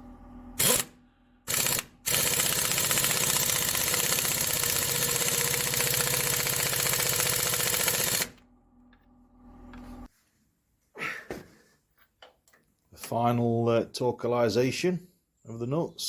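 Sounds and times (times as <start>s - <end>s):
power tool rattling: 0.6s - 0.9s, 1.5s - 8.4s.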